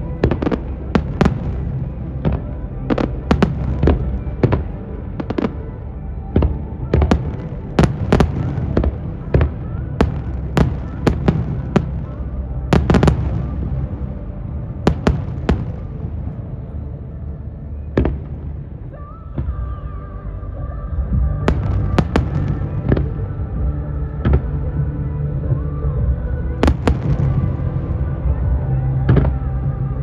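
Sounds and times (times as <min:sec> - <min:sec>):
low rumble: 0:00.0 - 0:30.0
fireworks bursting: 0:00.1 - 0:05.8, 0:06.4 - 0:16.5, 0:21.4 - 0:23.5, 0:26.6 - 0:29.7.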